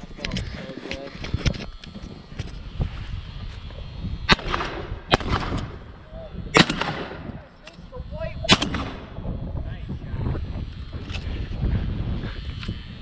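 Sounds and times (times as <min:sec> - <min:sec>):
shotgun shots: 0:04.3 - 0:05.8, 0:06.5 - 0:07.4, 0:08.5 - 0:09.2.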